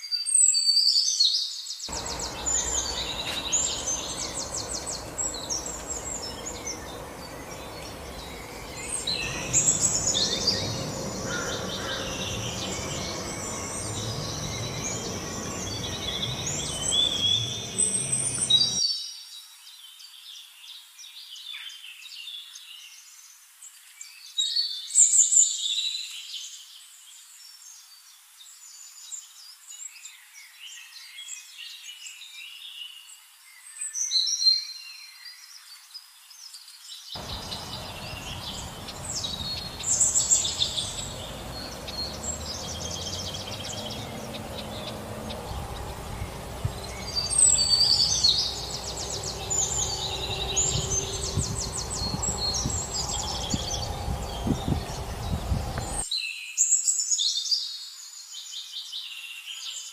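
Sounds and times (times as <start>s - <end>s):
birds chirping in rapid trills: 1.9s - 18.8s, 37.2s - 56.1s
low even background noise: 1.9s - 18.8s.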